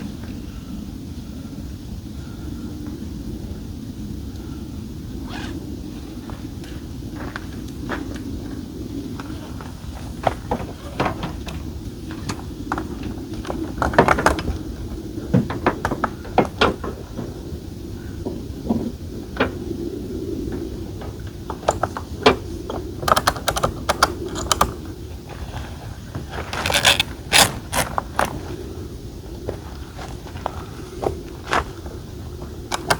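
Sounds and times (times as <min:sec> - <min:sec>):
tent fittings clicking and rattling: 0:23.0 - 0:24.8, 0:26.5 - 0:28.4.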